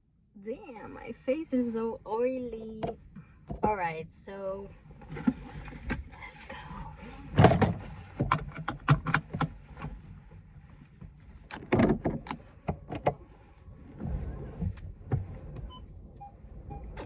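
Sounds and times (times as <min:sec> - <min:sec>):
car engine rumble: 0:00.0 - 0:17.0
sharp clicks and knocks: 0:07.4 - 0:09.9.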